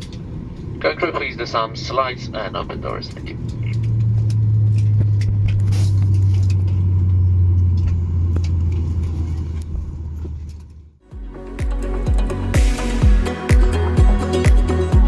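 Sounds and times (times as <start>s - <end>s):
aircraft cabin hum: 0.0s - 11.0s
electronic music with a beat: 11.0s - 15.0s.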